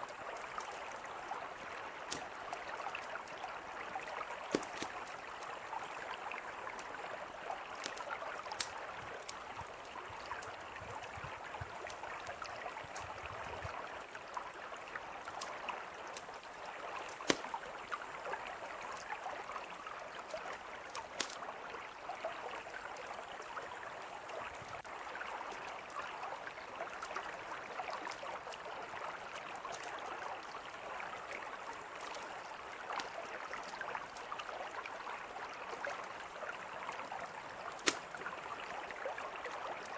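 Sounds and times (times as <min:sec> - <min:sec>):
river flowing: 0:00.0 - 0:39.9
campfire crackling and popping: 0:02.1 - 0:03.2, 0:04.4 - 0:05.6, 0:07.5 - 0:13.2, 0:17.0 - 0:18.0, 0:20.8 - 0:21.4, 0:37.6 - 0:38.4.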